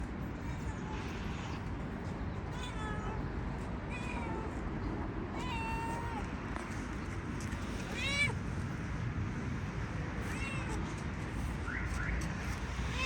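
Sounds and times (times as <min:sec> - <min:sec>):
cat meowing: 0:05.4 - 0:06.3, 0:10.2 - 0:10.9.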